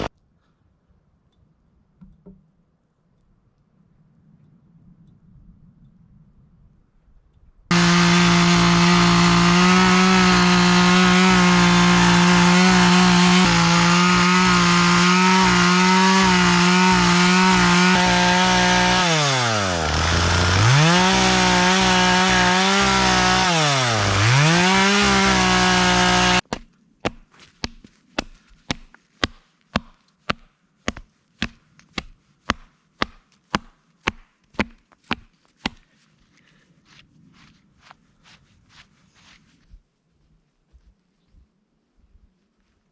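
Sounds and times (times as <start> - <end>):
chainsaw running at high revs: 7.7 - 26.4.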